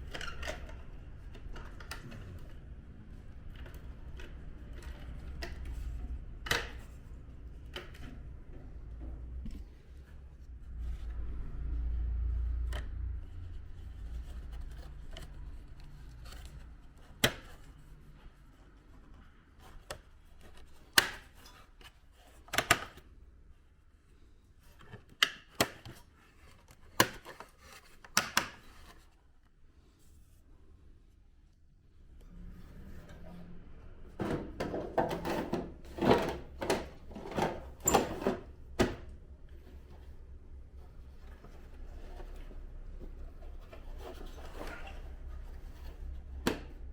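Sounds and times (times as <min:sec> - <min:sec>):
plastic parts clicking and knocking: 0:34.2 - 0:39.1.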